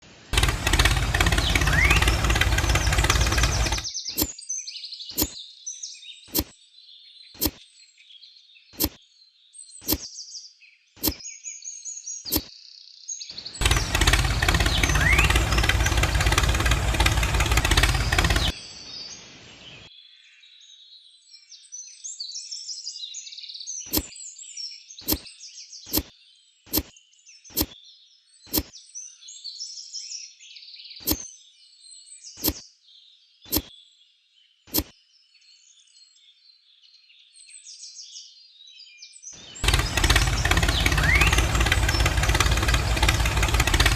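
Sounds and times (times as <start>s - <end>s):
birds chirping: 0.3s - 21.2s, 23.6s - 29.3s, 30.8s - 36.4s, 39.4s - 43.9s
sharp clicks: 0.4s - 4.4s, 5.1s - 5.4s, 6.3s - 6.5s, 7.4s - 7.6s, 8.8s - 9.0s, 9.8s - 10.1s, 11.0s - 11.2s, 12.3s - 12.5s, 13.6s - 18.5s, 23.9s - 24.1s, 25.0s - 25.3s, 25.9s - 26.1s, 26.7s - 26.9s, 27.5s - 27.8s, 28.5s - 28.7s, 31.0s - 31.2s, 32.4s - 32.6s, 33.5s - 33.7s, 34.7s - 34.9s, 39.6s - 43.9s.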